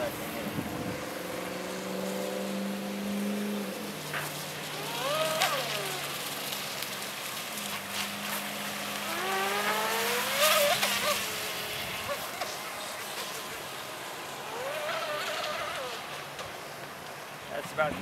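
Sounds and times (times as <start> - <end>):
hiss of wind and water: 0.0 - 18.0
electric motor whining: 4.2 - 6.4, 8.9 - 13.6.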